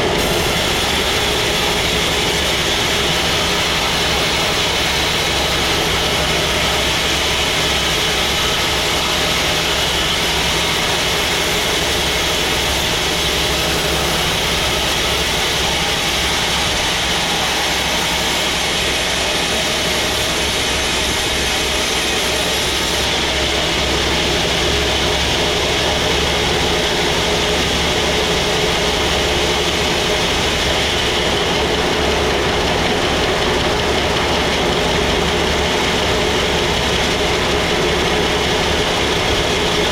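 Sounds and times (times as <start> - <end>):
continuous machinery hiss: 0.0 - 39.9
sawmill engine hum: 0.0 - 39.9.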